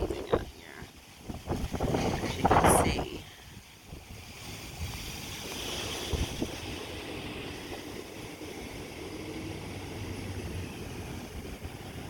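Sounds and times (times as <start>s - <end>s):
wind blowing hard: 0.0s - 8.4s
wind buffeting microphone: 0.0s - 12.0s.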